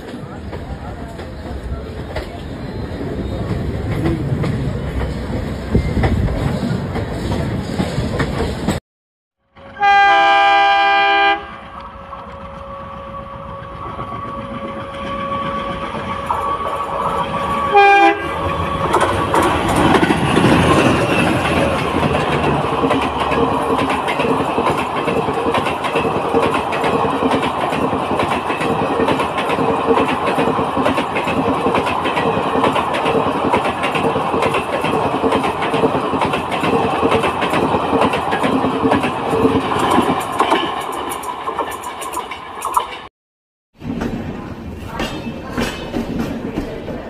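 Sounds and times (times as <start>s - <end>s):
train passing at speed: 0.0s - 8.8s, 9.4s - 43.1s
train wheels rumbling and clattering: 0.0s - 8.8s, 11.4s - 43.1s, 43.7s - 47.0s
locomotive horn: 9.6s - 11.6s, 14.6s - 18.5s.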